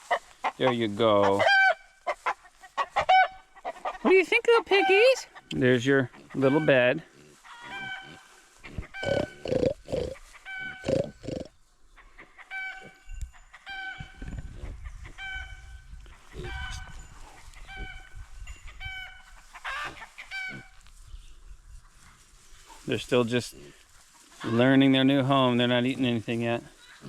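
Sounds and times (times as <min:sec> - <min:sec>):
chicken clucking: 0:00.0 - 0:04.2, 0:07.4 - 0:15.5, 0:18.7 - 0:20.7.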